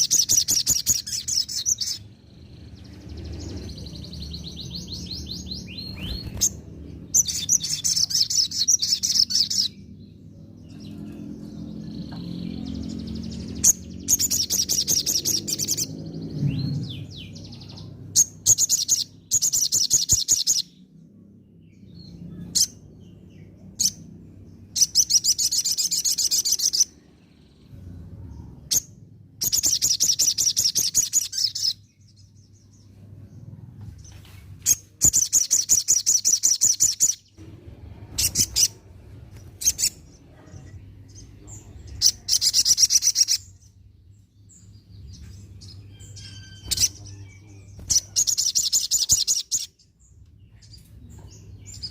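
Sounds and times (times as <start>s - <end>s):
bird sharp chirps: 0.0s - 11.1s, 11.8s - 20.8s, 28.6s - 32.4s, 34.6s - 37.4s, 39.4s - 49.9s
bird high trilling song: 0.0s - 37.4s, 38.0s - 51.9s.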